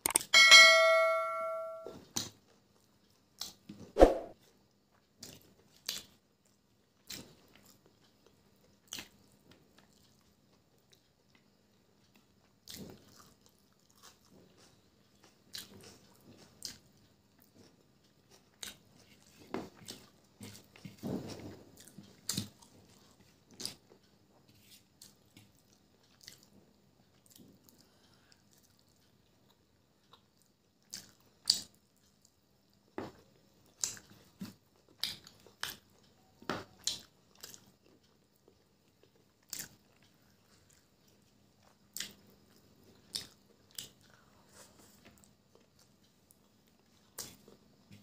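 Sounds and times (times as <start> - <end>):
wet chewing with lip smacks: 25.0 - 26.5, 36.8 - 44.2.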